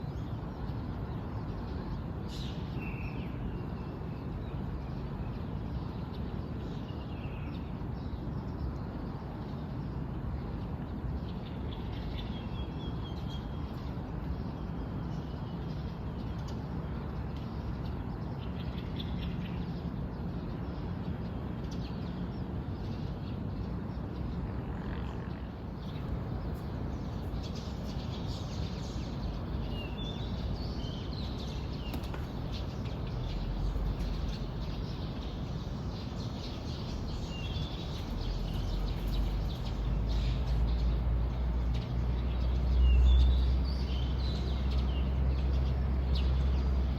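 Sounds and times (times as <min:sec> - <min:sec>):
low outdoor rumble: 0:24.2 - 0:46.9
birds chirping: 0:25.6 - 0:46.9.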